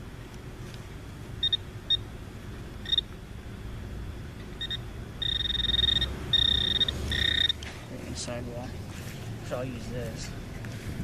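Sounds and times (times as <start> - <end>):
metal detector beeping: 1.4 - 2.0, 2.8 - 3.1, 4.6 - 7.6.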